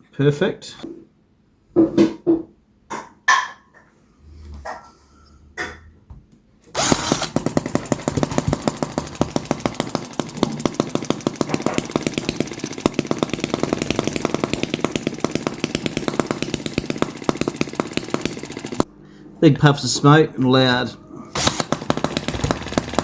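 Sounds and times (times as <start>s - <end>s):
model engine running: 6.8s - 18.9s, 21.4s - 23.0s.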